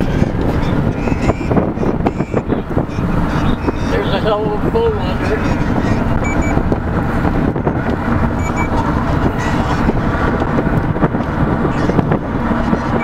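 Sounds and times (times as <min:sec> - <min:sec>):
car road and engine noise: 0:00.0 - 0:13.0
short high double beep: 0:06.2 - 0:06.6, 0:08.4 - 0:08.7.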